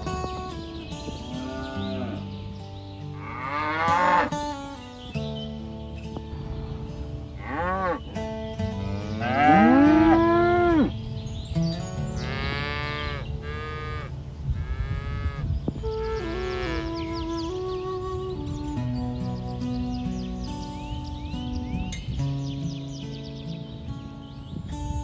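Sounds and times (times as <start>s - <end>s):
soft background music: 0.0s - 25.0s
cattle mooing: 1.3s - 2.3s, 3.2s - 4.4s, 7.4s - 8.2s, 8.8s - 11.0s, 12.2s - 17.2s.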